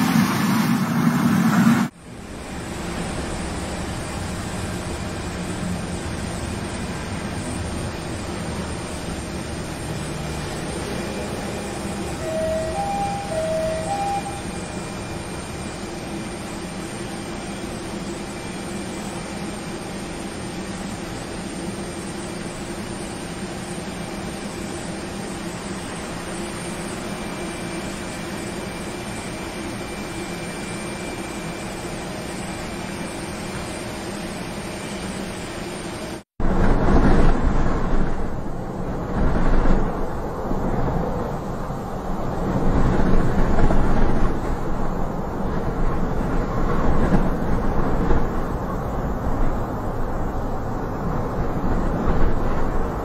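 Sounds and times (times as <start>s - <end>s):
vehicle drone: 0.0s - 53.0s
short high beeps: 12.2s - 14.8s.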